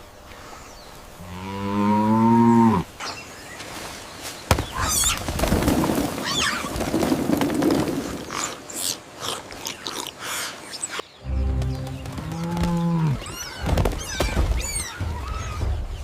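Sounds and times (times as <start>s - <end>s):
cow mooing: 12.3s - 13.2s.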